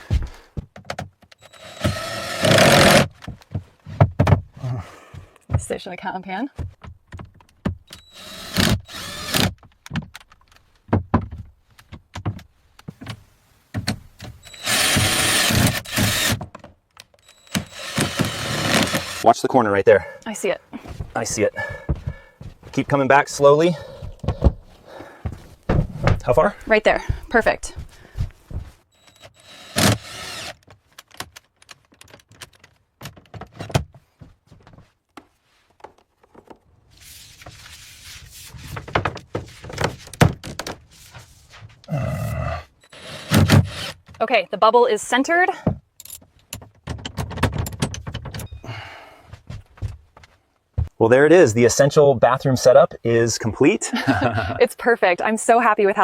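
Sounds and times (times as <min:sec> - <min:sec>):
heavy thumps: 0:02.6 - 0:05.9, 0:23.8 - 0:28.8
sharp knocks and clatter: 0:46.0 - 0:48.5.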